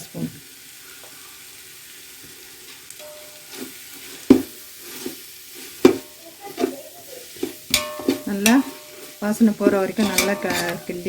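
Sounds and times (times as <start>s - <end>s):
food sizzling in oil: 0.0s - 11.0s
spoon knocking against pot: 5.8s - 6.7s, 7.4s - 8.9s, 9.5s - 11.0s
spoon stirring: 6.6s - 11.0s.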